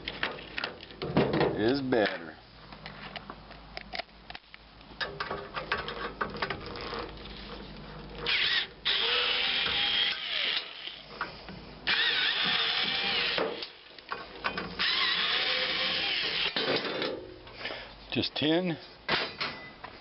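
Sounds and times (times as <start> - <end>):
power drill whining: 8.3 - 11.1, 11.9 - 13.8, 14.8 - 16.6.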